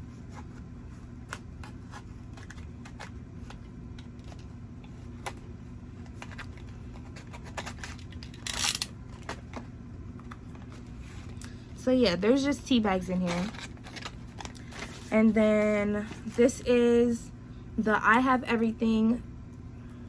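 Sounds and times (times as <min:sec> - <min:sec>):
steady low hum: 0:00.0 - 0:20.0
packaging rustle: 0:01.3 - 0:05.4, 0:06.0 - 0:11.5, 0:13.1 - 0:16.4.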